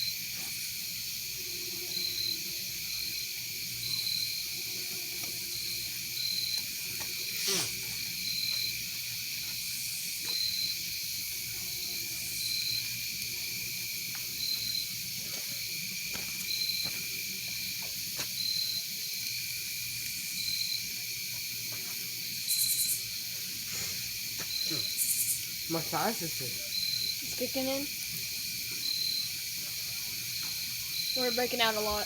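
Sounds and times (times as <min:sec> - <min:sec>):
crickets trilling: 0:00.0 - 0:32.0
raspy insect buzz: 0:00.0 - 0:32.0
short insect chirp: 0:00.0 - 0:32.0.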